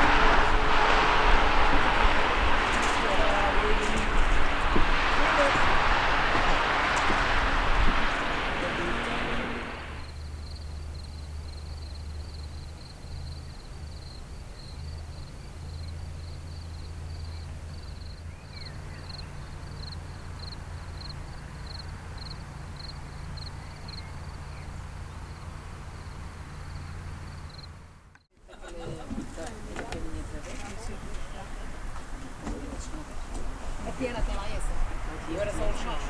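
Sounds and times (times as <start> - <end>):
low steady rumble: 0.0 - 10.7
insect chirping: 10.0 - 27.8.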